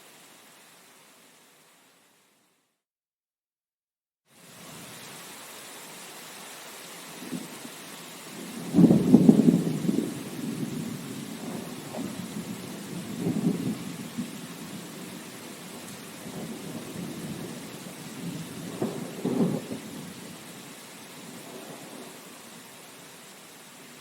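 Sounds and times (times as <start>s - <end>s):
steady rain: 0.0s - 2.7s, 4.3s - 24.0s
thunder rumbling: 8.3s - 20.4s.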